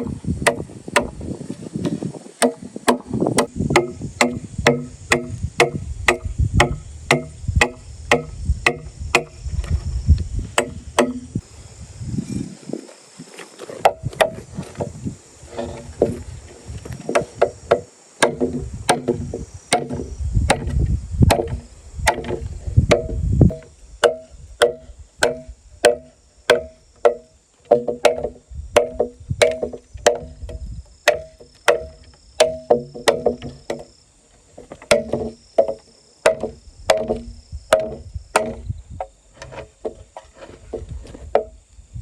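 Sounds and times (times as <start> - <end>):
blade chopping bamboo: 0.0 - 1.2, 2.4 - 9.4, 10.6 - 11.4, 17.1 - 33.9, 34.8 - 38.6.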